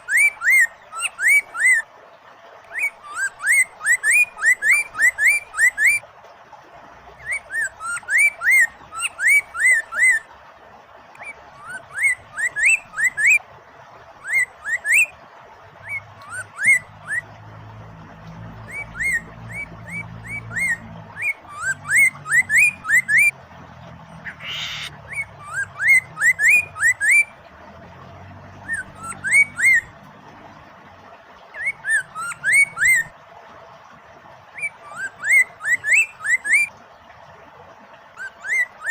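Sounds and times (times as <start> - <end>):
running water: 0.0 - 38.9
bird singing whistled notes: 2.7 - 6.0, 11.2 - 13.4, 14.2 - 15.1, 15.8 - 17.2, 18.6 - 23.4, 24.2 - 27.3, 28.6 - 29.9, 31.6 - 33.1, 34.6 - 36.7
harsh bird call: 24.2 - 27.2.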